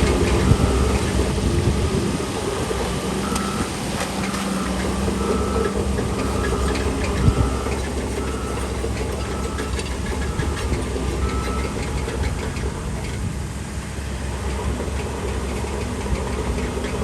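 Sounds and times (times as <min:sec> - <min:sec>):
heavy diesel engine running: 0:00.0 - 0:17.0
reversing alarm beeping: 0:00.1 - 0:01.2, 0:03.2 - 0:12.2.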